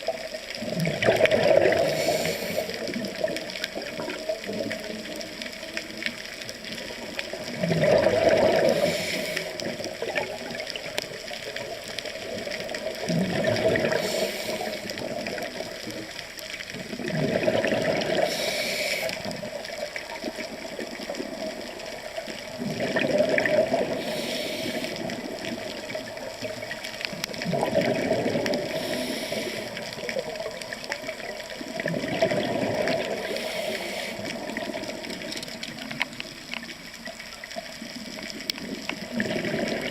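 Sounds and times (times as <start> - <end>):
diver exhaling bubbles: 0.6 - 4.9, 7.3 - 10.7, 12.7 - 15.8, 16.8 - 19.6, 22.4 - 36.0, 38.6 - 39.9
regulator hiss: 1.7 - 3.0, 8.5 - 9.9, 13.8 - 15.0, 18.2 - 19.6, 23.9 - 25.4, 28.6 - 30.4, 33.1 - 34.5.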